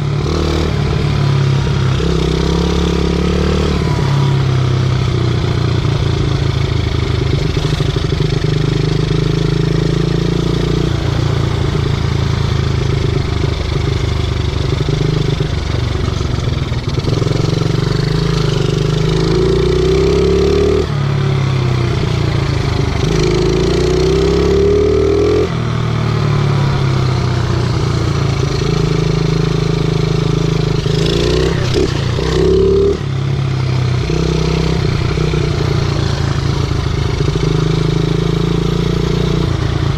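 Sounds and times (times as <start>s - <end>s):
pit bike engine revving: 16.9s - 21.0s, 21.9s - 25.6s, 26.3s - 39.9s.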